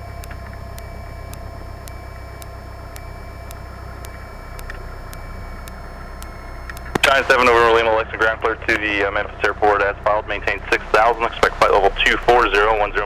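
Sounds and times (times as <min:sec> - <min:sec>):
faint ticks: 0:00.0 - 0:13.0
aircraft engine hum through intercom: 0:07.1 - 0:13.0.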